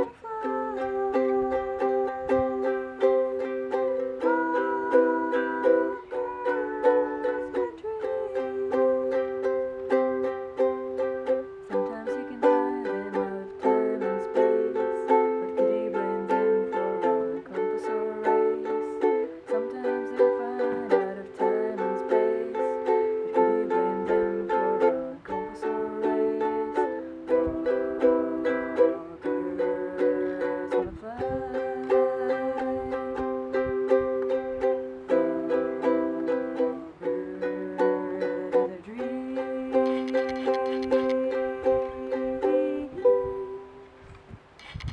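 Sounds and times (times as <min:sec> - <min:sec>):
acoustic strings strumming chords: 0:00.0 - 0:44.0.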